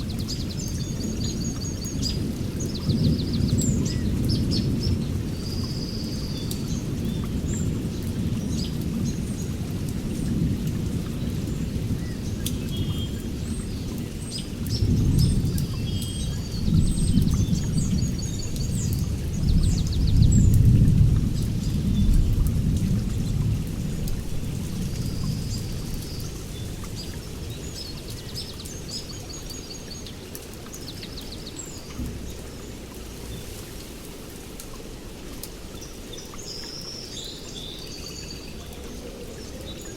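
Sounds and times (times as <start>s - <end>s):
rain falling steadily: 0.0s - 39.9s
rolling thunder: 16.5s - 27.6s.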